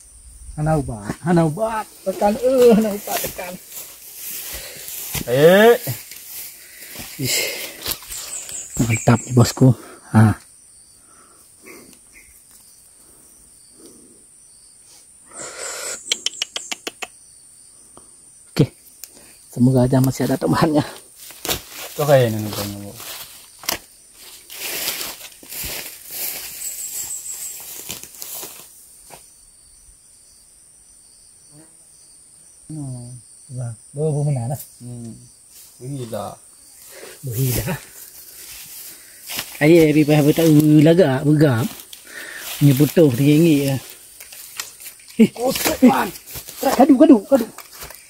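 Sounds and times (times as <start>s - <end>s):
insects chirring: 0.0s - 48.0s
sharp clicks: 16.0s - 17.1s.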